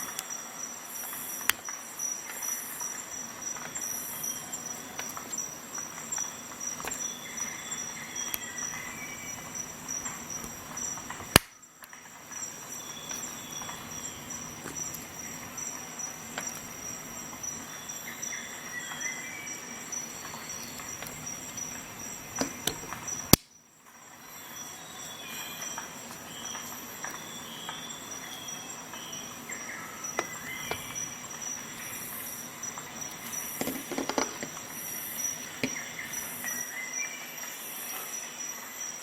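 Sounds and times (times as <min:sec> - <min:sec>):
cricket-like chirring: 0:00.0 - 0:39.0
sharp loud clicks: 0:10.4 - 0:11.6.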